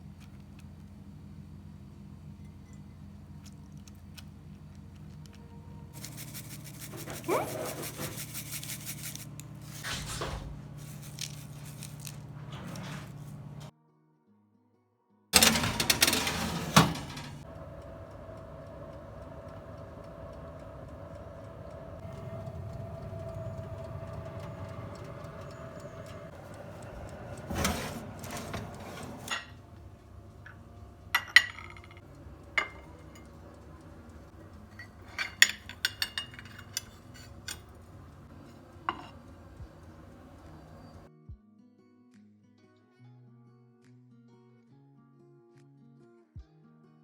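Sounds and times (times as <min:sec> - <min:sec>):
kitchenware clinking: 0:15.4 - 0:29.6, 0:31.2 - 0:33.6, 0:34.4 - 0:39.3
steady low hum: 0:17.0 - 0:31.1.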